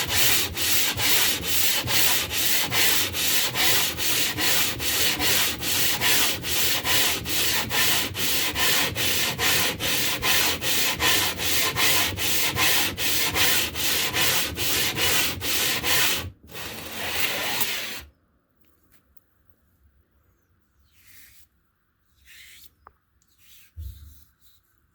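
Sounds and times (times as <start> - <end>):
stone scraping on abrasive surface: 0.0 - 18.1.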